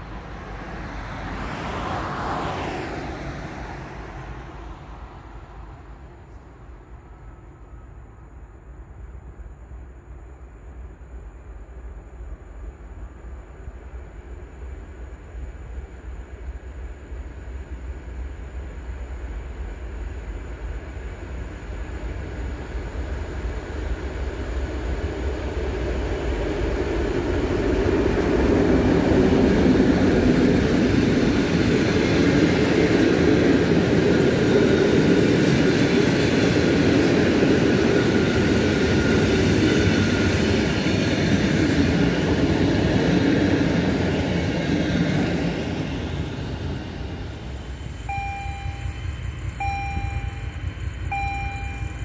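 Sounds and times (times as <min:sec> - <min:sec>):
train passing rumble: 0:00.0 - 0:52.0.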